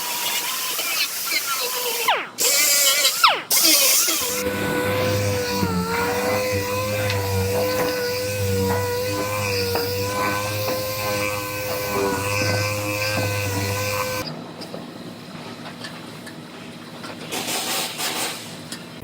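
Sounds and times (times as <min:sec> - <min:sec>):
power tool whining: 0:00.0 - 0:14.3.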